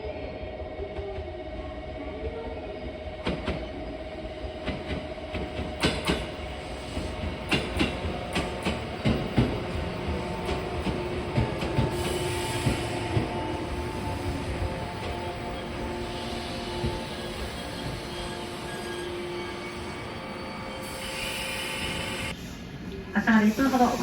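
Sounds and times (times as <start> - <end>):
running train hum: 0.0 - 24.0
train wheels clacking over rail joints: 4.7 - 13.4.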